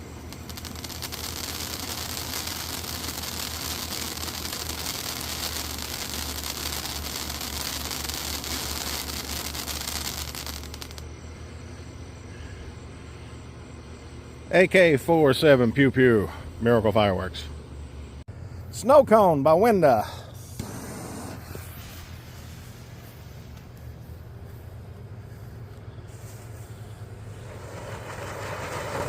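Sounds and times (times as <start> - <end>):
firework fountain hissing and crackling: 0.0 - 11.2, 20.3 - 29.0.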